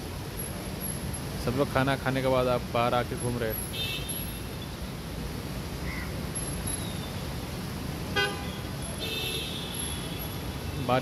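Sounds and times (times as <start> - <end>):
vehicle horn toot: 8.2 - 10.0.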